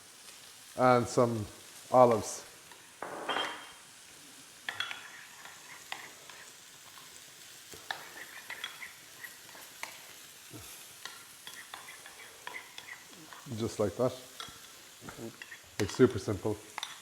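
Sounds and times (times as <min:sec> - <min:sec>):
chicken sizzling on a griddle: 0:00.0 - 0:17.0
spoon stirring in a bowl: 0:04.7 - 0:10.1, 0:11.0 - 0:13.5, 0:16.7 - 0:17.0.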